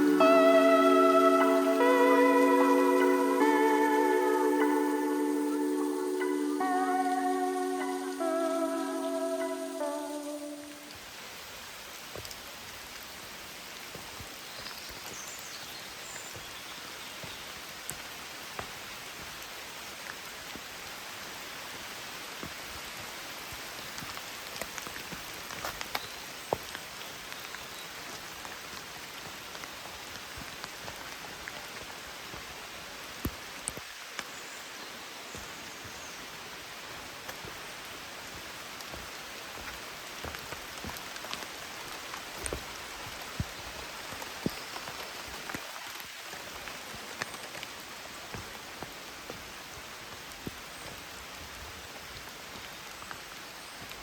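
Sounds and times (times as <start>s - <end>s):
steady rain falling: 0.0s - 54.0s
raindrops tapping close by: 10.9s - 34.3s, 36.8s - 54.0s.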